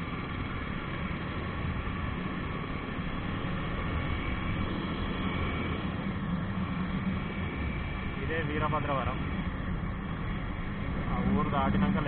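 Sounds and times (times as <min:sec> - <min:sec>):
motorcycle engine drone: 0:00.0 - 0:12.0.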